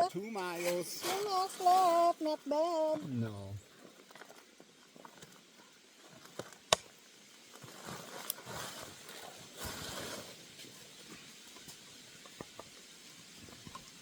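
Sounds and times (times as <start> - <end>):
footsteps on trail: 0.0 - 3.0.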